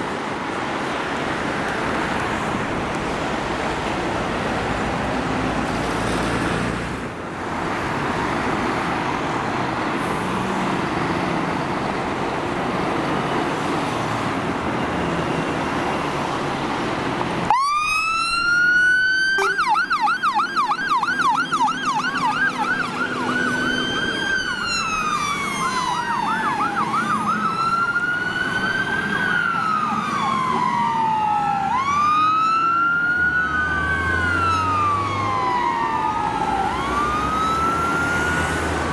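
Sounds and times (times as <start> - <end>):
road traffic: 0.0 - 38.9
electronic siren wailing and yelping: 17.5 - 38.9
second siren: 17.5 - 38.9.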